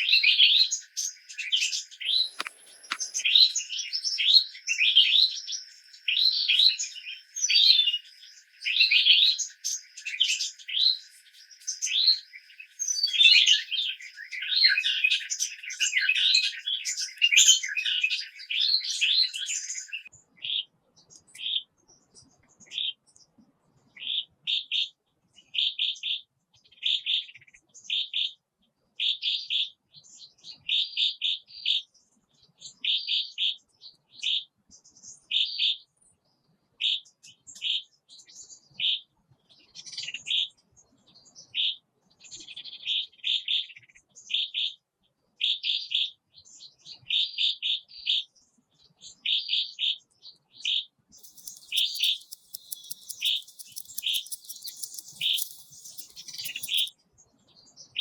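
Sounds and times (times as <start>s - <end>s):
wild birds chirping: 0.0s - 20.1s, 51.2s - 56.9s.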